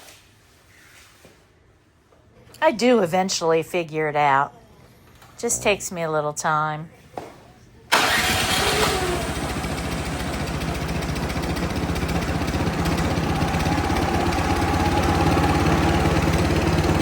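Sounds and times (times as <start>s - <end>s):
snowblower engine running: 7.9s - 17.0s.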